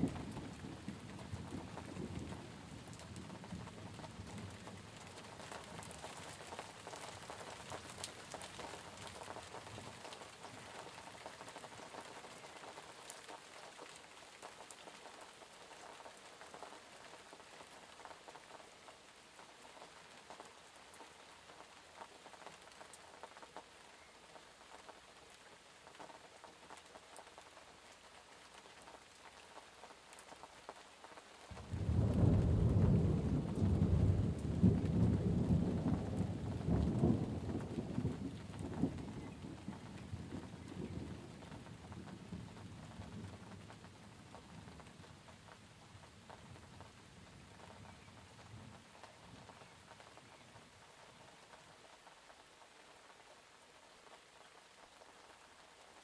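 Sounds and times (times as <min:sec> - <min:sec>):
rain pattering: 0:00.0 - 0:56.0
raindrops ticking: 0:00.0 - 0:56.0
thunder rumbling: 0:31.5 - 0:44.7.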